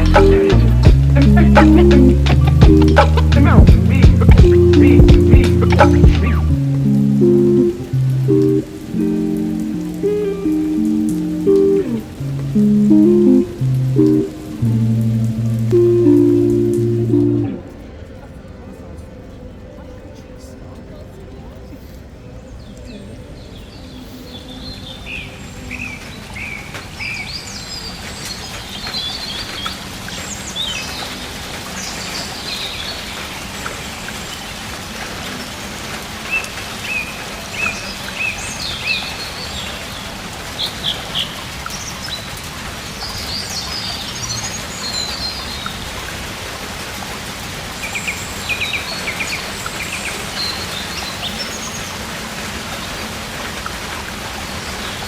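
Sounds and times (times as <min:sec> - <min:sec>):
birds chirping: 0:00.0 - 0:17.9, 0:47.7 - 0:53.2
steady rain hiss: 0:00.0 - 0:55.0.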